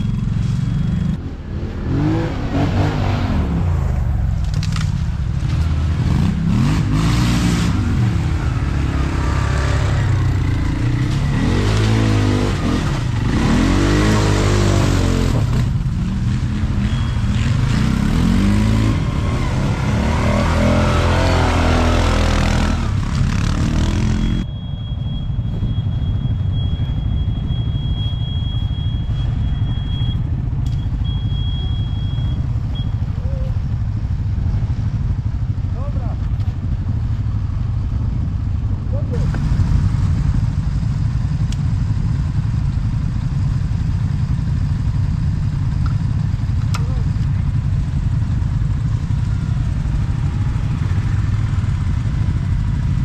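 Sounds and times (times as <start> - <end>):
atv engines revving: 0.0 - 24.5, 25.6 - 53.0
low engine rumble: 14.4 - 53.0.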